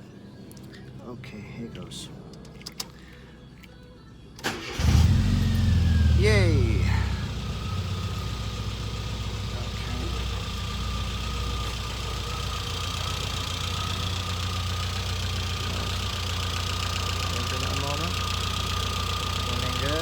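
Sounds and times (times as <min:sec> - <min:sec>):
car engine idling: 0:04.4 - 0:20.0.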